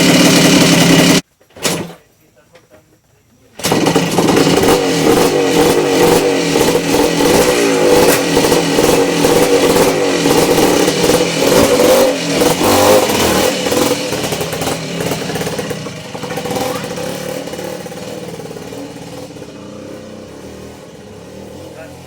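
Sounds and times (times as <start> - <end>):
engine revving: 0.0 - 1.2, 3.6 - 22.0.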